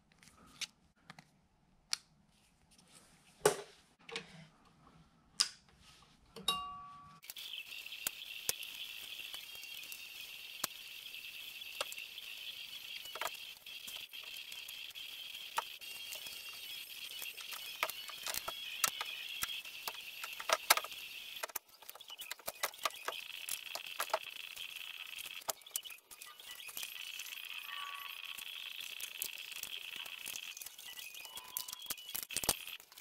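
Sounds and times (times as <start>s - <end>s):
insect chirring: 7.2s - 33.0s.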